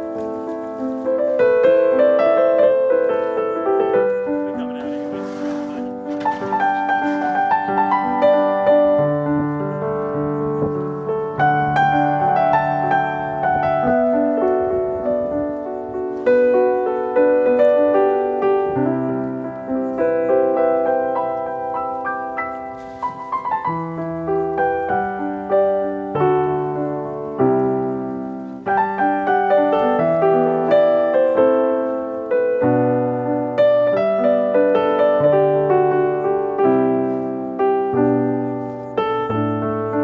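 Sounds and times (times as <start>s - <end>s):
gentle piano music: 0.0s - 40.0s.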